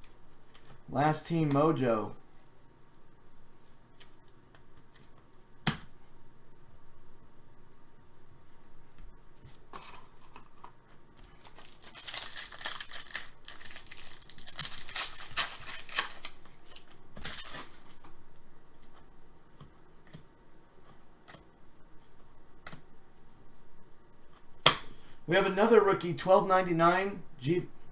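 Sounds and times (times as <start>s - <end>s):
card pack wrapper crinkling: 11.2s - 18.1s.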